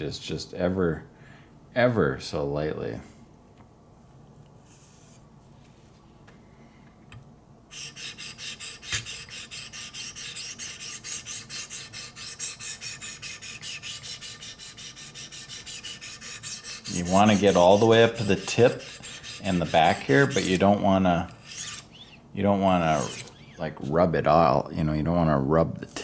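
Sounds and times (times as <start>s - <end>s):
sharpening stone rasping on knife: 7.7s - 20.6s, 21.3s - 21.9s, 22.8s - 23.4s.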